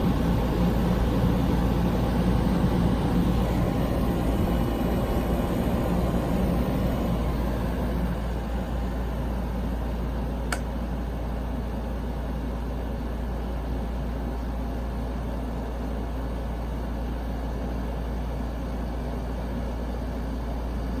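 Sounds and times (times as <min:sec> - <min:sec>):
air conditioner running: 0:00.0 - 0:21.0
click: 0:10.5 - 0:10.7.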